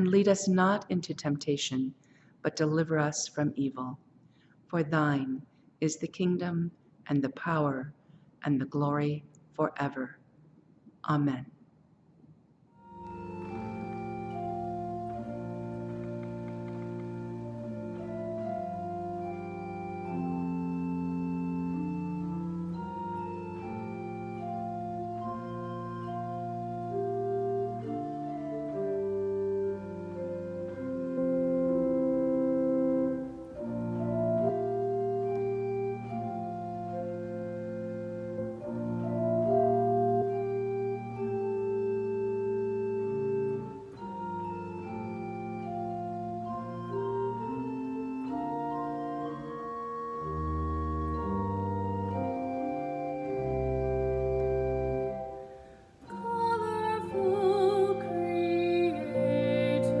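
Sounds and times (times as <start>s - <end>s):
organ playing chords: 12.8s - 60.0s
wavering vibrato melody: 12.8s - 60.0s.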